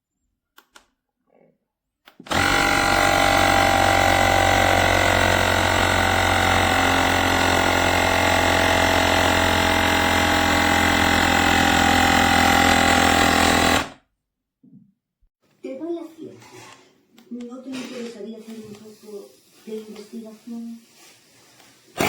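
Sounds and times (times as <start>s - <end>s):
electric air compressor running: 2.3s - 14.0s.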